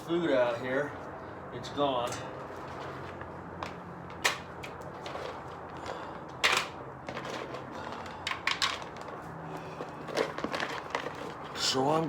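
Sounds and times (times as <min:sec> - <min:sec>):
bowls clattering: 0:02.2 - 0:11.5.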